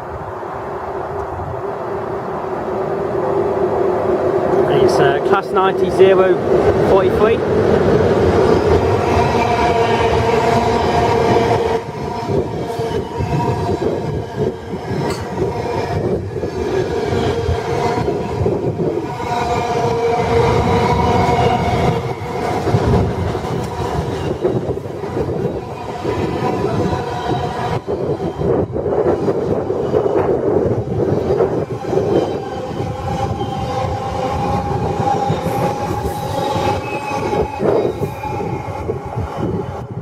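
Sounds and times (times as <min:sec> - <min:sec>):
freight train rumbling on rails: 0:00.0 - 0:40.0.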